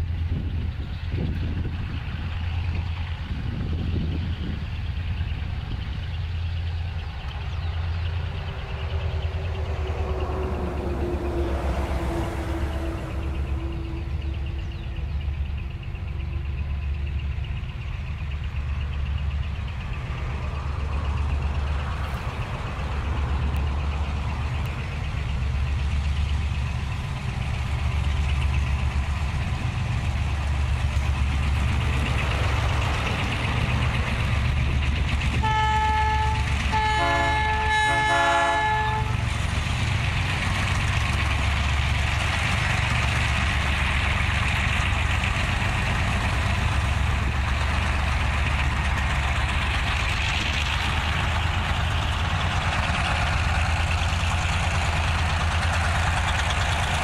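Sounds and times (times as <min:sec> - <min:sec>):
diesel locomotive engine rumble: 0:00.0 - 0:57.0
locomotive air horn blasts: 0:35.4 - 0:39.3.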